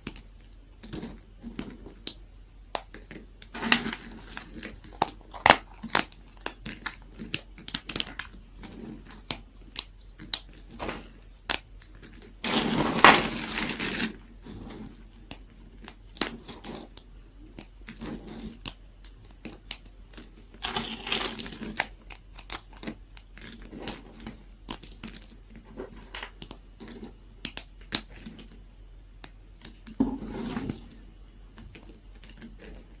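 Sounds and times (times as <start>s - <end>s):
knife cutting dry soap: 20.6s - 28.4s.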